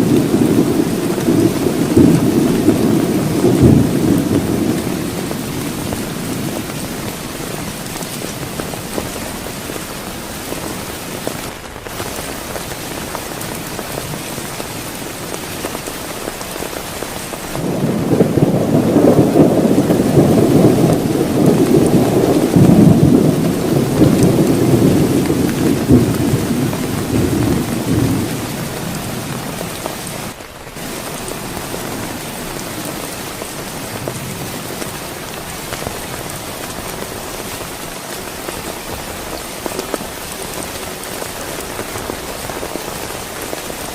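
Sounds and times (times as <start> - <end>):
rolling thunder: 0.0 - 9.5, 17.3 - 37.2
heavy rain: 0.0 - 43.9.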